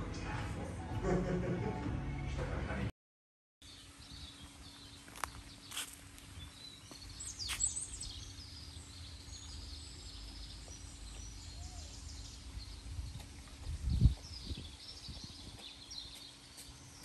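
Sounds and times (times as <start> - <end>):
birds chirping: 3.6 - 17.0.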